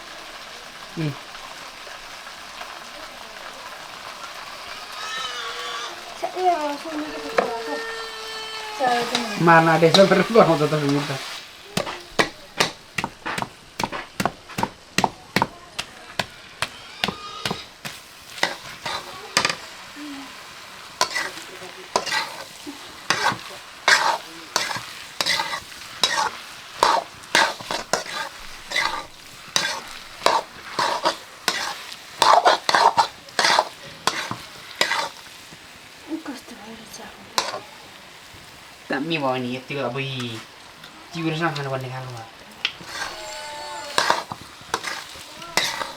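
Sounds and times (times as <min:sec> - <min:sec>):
frying sizzle: 0:00.0 - 0:45.9
spoon scraping and knocking pan: 0:06.9 - 0:19.8, 0:20.9 - 0:35.7, 0:37.4 - 0:37.7, 0:42.8 - 0:45.9.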